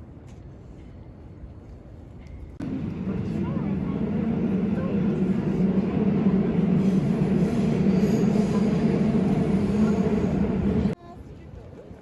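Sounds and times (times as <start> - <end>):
train rumbling on rails: 2.2 - 11.0.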